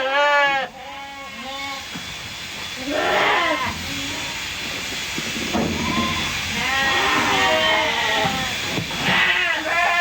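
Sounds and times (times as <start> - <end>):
sheep bleating: 0.0 - 1.9, 2.8 - 4.6, 5.7 - 10.0.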